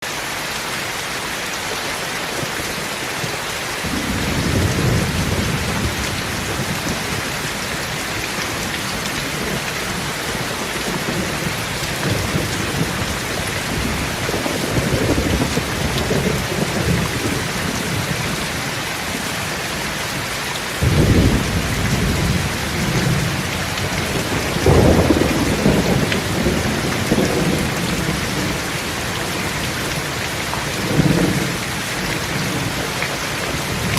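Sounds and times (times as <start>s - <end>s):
steady rain: 0.0s - 33.9s
thunder rumbling: 3.8s - 19.8s, 20.8s - 33.9s.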